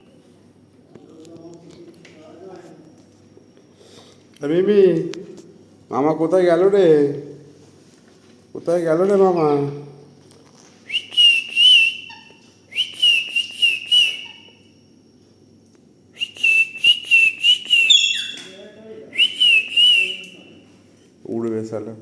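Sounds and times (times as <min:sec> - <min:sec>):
warbling whistles: 0:10.9 - 0:14.7, 0:16.2 - 0:18.6, 0:19.2 - 0:20.6.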